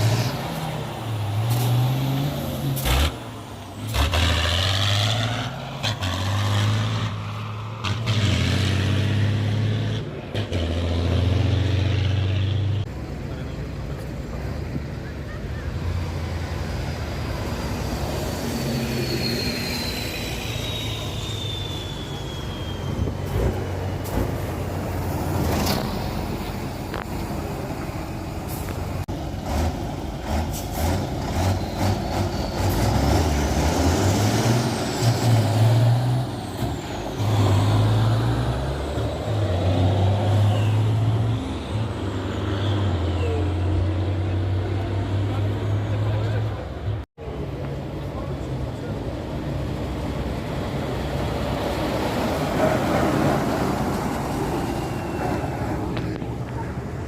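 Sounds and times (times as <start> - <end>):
diesel truck engines revving: 0.0 - 57.0
high whistle falling in pitch: 19.1 - 23.2.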